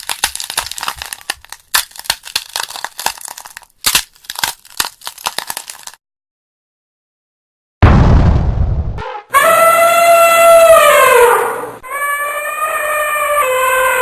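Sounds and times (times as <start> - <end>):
crackling and crunching: 0.0 - 6.0.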